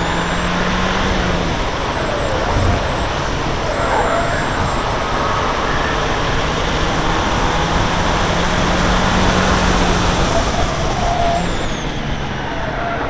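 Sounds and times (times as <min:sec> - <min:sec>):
car engine under load: 0:00.0 - 0:13.0
wind and road roar: 0:00.0 - 0:13.0.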